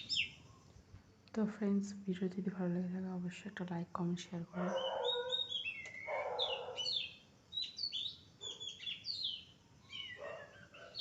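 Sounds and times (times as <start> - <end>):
birds chirping: 0.0 - 0.7, 4.4 - 11.0
raspy bird calls: 4.6 - 11.0.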